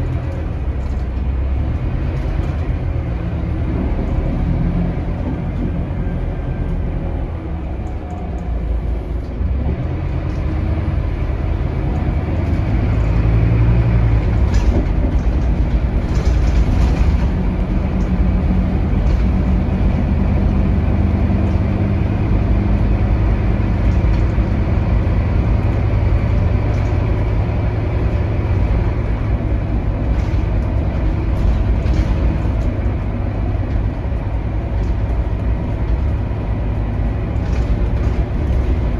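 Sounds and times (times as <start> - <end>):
bus engine drone: 0.0 - 38.9
light rattles: 11.2 - 38.9.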